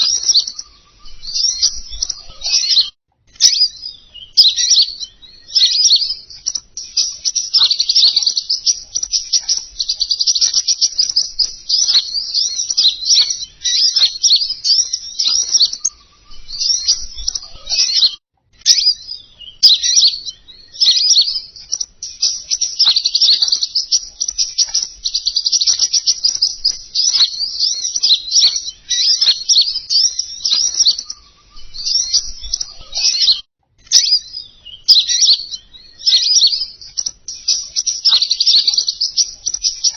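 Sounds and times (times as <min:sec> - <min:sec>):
bird chirping and twittering: 0:00.0 - 0:39.9.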